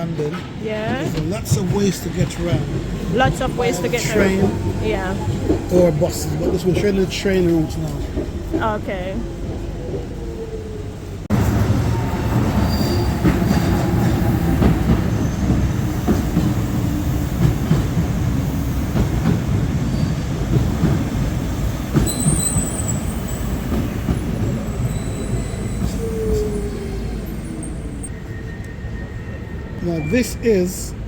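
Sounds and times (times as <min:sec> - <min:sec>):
train rumbling on rails: 0:00.0 - 0:31.0
high-pitched wheel squeal: 0:12.6 - 0:13.2, 0:27.5 - 0:30.5.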